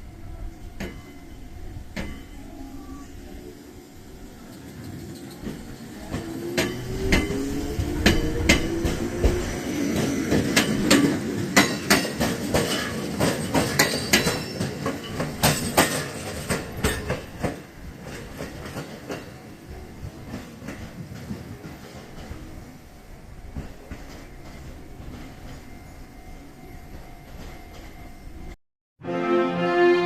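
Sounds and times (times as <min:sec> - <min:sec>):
train wheels clicking on rail joints: 0:04.4 - 0:22.6, 0:23.4 - 0:28.6.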